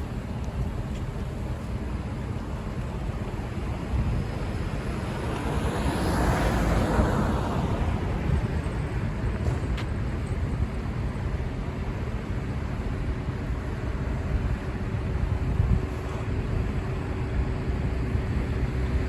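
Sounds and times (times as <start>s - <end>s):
road traffic rumble: 0.0s - 19.0s
vehicle passing: 4.4s - 9.0s.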